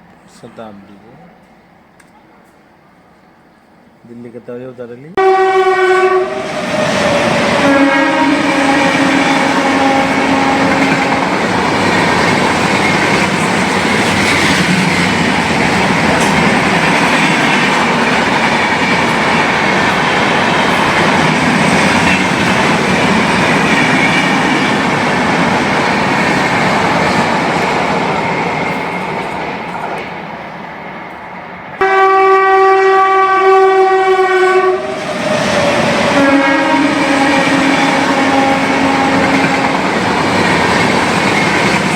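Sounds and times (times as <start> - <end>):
train passing with rumble: 0.0 - 41.9
train horn: 5.2 - 11.5, 31.8 - 40.0
wheels clickety-clack: 10.6 - 30.2, 39.0 - 41.9.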